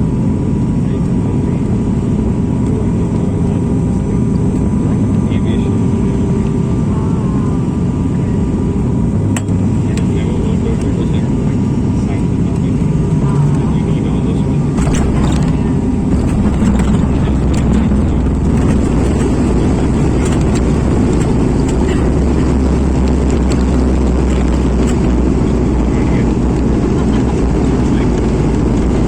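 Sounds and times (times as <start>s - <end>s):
airliner cabin engine rumble: 0.0s - 29.0s
small clicks and rattles: 14.8s - 25.7s.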